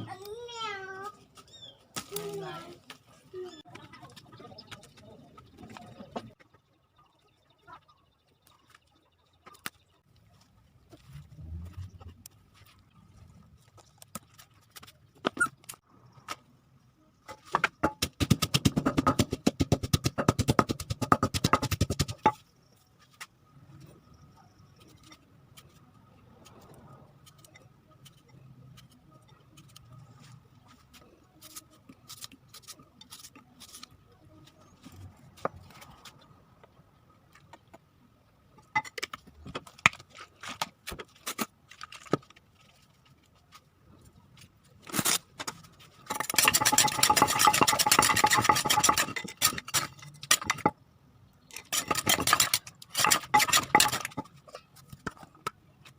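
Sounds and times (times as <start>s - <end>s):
loud scraping and rustling: 51.6s - 55.3s.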